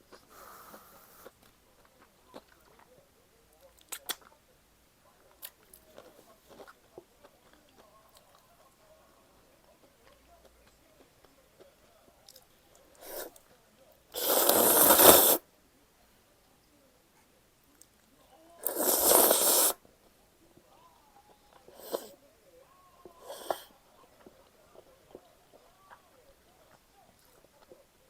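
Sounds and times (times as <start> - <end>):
person slurping noodles: 14.2 - 15.4, 18.6 - 19.8
sucking sounds: 14.2 - 15.4, 18.6 - 19.8.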